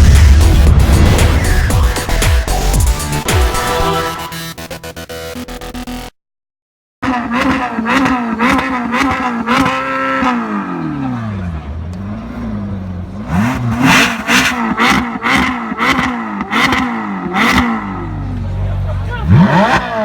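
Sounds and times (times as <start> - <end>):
exhaust cracks: 7.0 - 20.0
sports car engine revving: 7.0 - 20.0.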